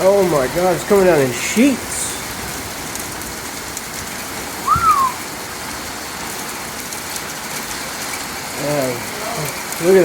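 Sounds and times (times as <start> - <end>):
hailstones ticking: 0.0 - 10.0
heavy rain hissing: 0.0 - 10.0
rising and falling tone: 4.6 - 5.2.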